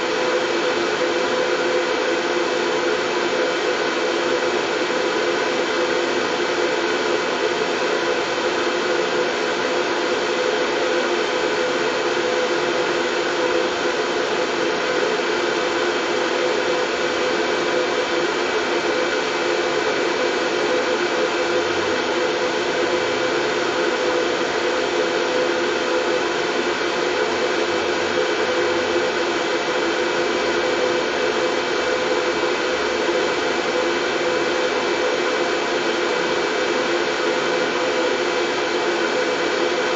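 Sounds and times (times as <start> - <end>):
faint steady whine: 0.0 - 39.9
steady white noise: 0.0 - 39.9.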